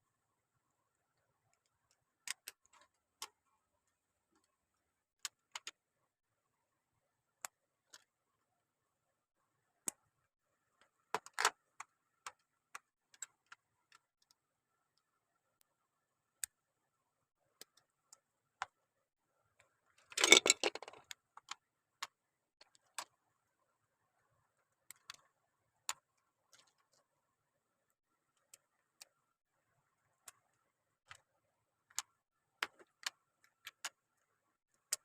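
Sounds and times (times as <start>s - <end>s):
plastic pieces clattering: 20.1s - 21.0s
plastic bricks clicking together: 20.2s - 23.1s.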